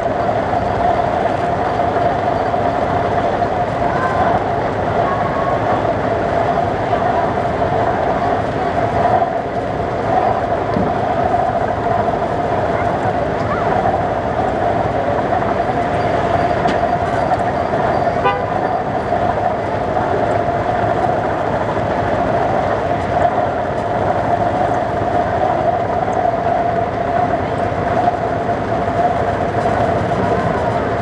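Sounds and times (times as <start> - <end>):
steam whistle blowing: 18.1 - 18.8.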